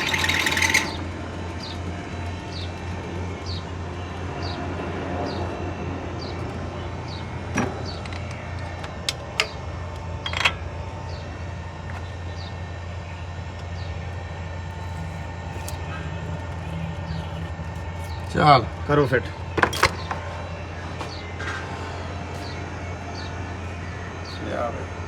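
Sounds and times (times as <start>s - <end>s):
metallic clicks and knocks: 7.5s - 9.6s, 10.2s - 10.6s.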